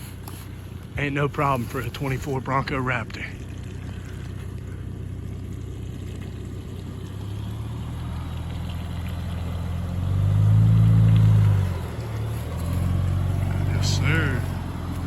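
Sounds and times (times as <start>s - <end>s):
car engine revving: 5.4s - 15.0s.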